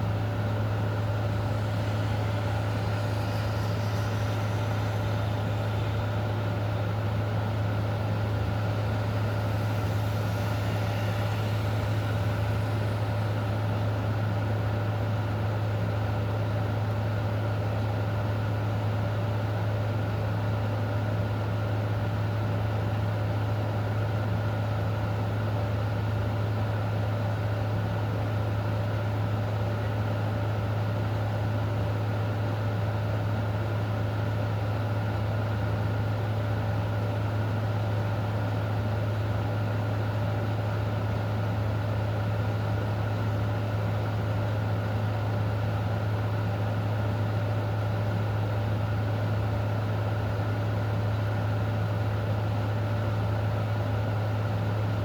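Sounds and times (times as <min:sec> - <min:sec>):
faint constant tones: 0:00.0 - 0:16.2
low machine hum: 0:00.0 - 0:55.0.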